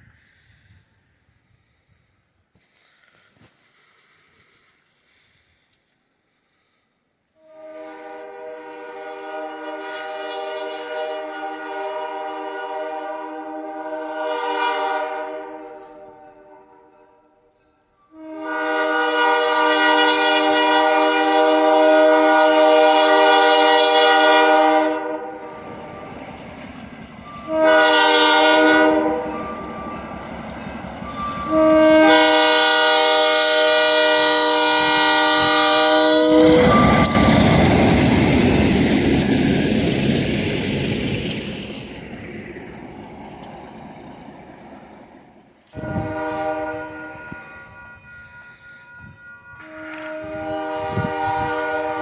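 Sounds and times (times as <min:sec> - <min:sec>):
locomotive air horn blasts: 0:07.4 - 0:26.4, 0:27.2 - 0:38.9, 0:45.6 - 0:52.0
locomotive passing with rumble: 0:22.5 - 0:33.1, 0:36.2 - 0:47.4.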